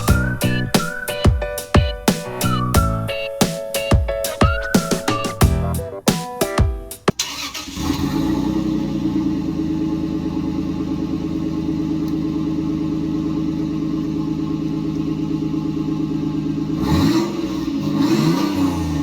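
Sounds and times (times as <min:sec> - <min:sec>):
car engine idling and revving: 0:07.2 - 0:19.0.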